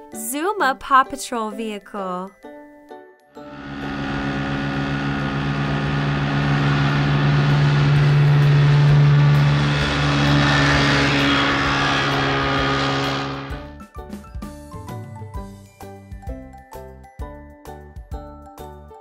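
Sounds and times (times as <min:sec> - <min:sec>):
hovercraft engine drone: 0:03.4 - 0:13.6.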